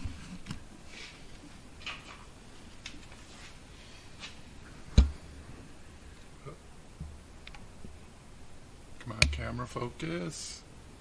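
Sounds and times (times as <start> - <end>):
faint rustles: 0.0 - 6.6.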